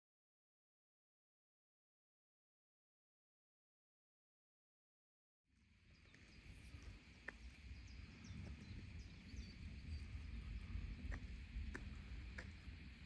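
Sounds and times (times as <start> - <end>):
low uneven rumble: 5.7 - 13.0
bird chirps: 5.8 - 12.8.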